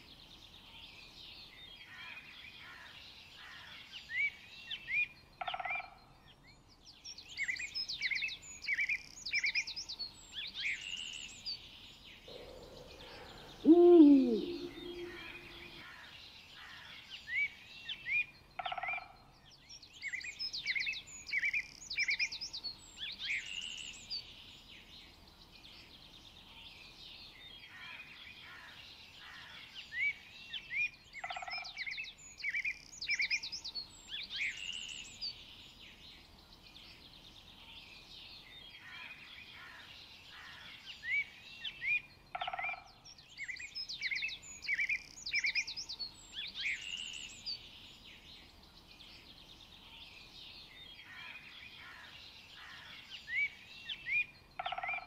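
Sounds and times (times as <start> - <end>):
birds chirping and singing: 12.2 - 15.8
faint background hush: 12.3 - 15.8
short lower bird call: 12.3 - 15.8.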